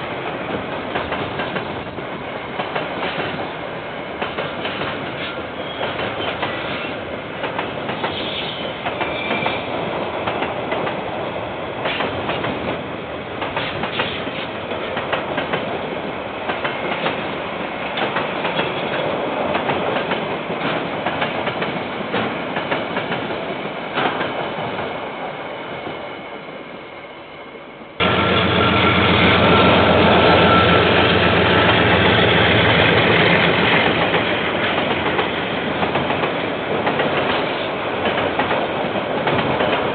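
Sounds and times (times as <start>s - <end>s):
train wagons rumbling past: 0.0s - 26.6s, 28.0s - 39.9s
diesel locomotive engine running: 28.0s - 34.6s.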